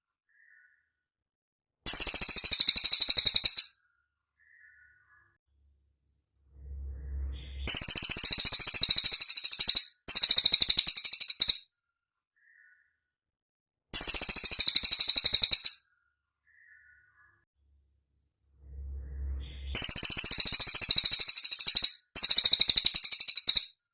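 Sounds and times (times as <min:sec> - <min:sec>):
bird trilling: 0:07.3 - 0:11.6.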